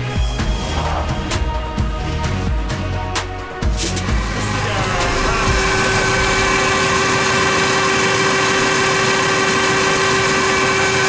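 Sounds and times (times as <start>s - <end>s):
electric motor whine: 3.8s - 11.0s.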